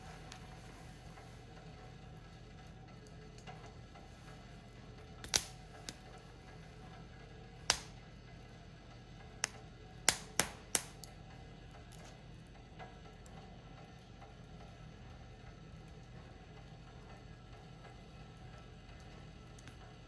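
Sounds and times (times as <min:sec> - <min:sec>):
firewood popping and cracking: 0:05.0 - 0:06.2, 0:07.6 - 0:08.1, 0:09.4 - 0:11.2.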